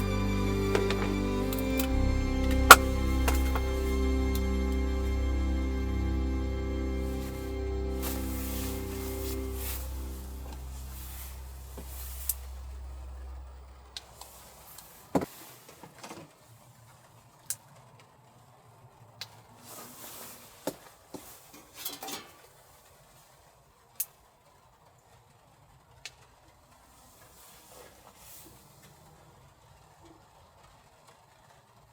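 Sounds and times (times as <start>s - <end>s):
low hum: 0.0s - 14.2s.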